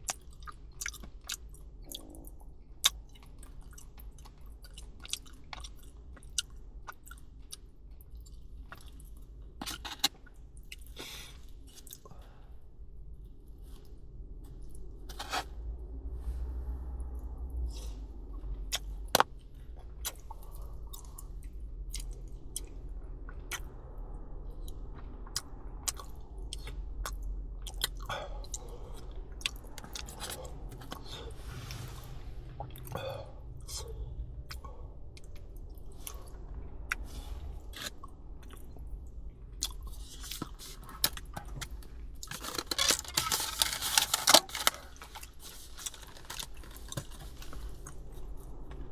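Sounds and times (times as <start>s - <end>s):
close chewing: 0.0s - 10.0s, 24.6s - 32.0s, 32.6s - 38.8s, 39.6s - 48.8s.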